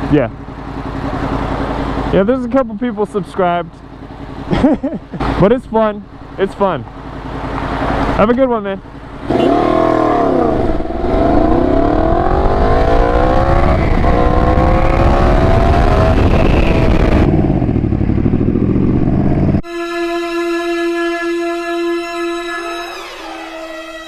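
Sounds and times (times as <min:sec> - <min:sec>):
motorcycle engine accelerating: 0:00.0 - 0:19.7
music: 0:21.9 - 0:24.0.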